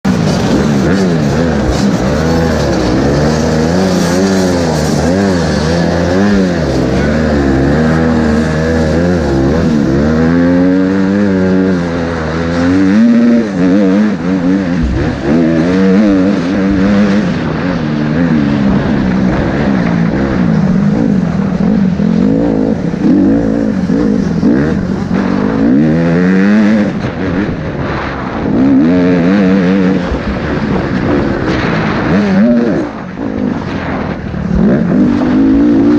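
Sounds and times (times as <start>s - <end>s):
motocross bike engine revving: 0.0s - 35.9s.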